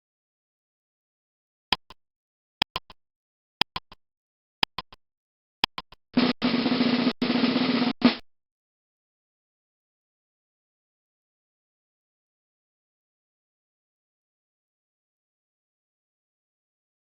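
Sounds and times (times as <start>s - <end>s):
snare drum roll: 6.2s - 8.2s.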